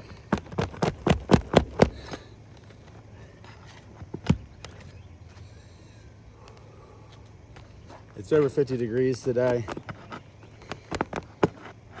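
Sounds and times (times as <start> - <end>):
hammer strikes on roof: 0.4 - 2.2.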